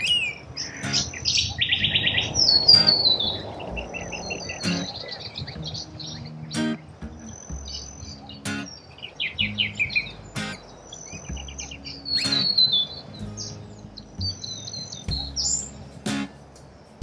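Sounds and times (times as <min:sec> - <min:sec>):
small birds chirping: 0:00.0 - 0:17.0
background music with beat: 0:03.6 - 0:08.8, 0:09.4 - 0:17.0.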